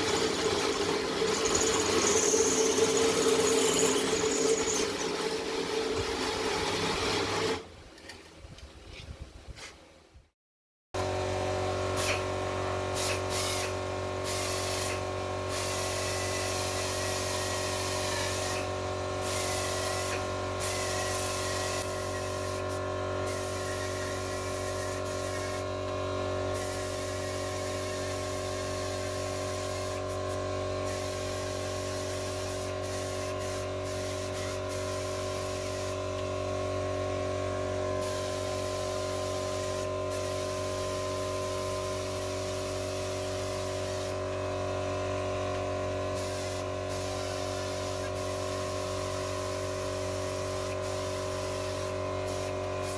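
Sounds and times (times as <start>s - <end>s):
spray can hissing: 46.2s - 52.9s.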